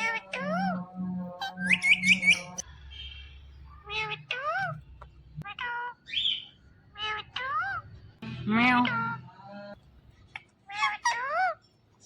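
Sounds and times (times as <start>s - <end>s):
parakeet whistled calls: 1.4s - 3.2s.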